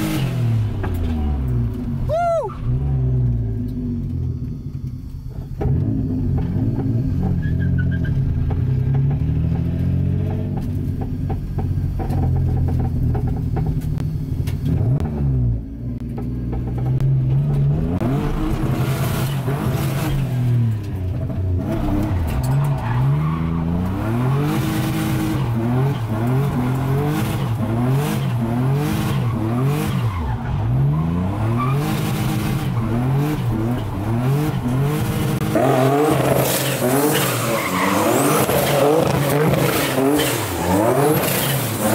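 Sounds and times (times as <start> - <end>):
car engine revving: 0.0 - 41.9
tire squeal: 7.2 - 8.4, 21.8 - 41.9.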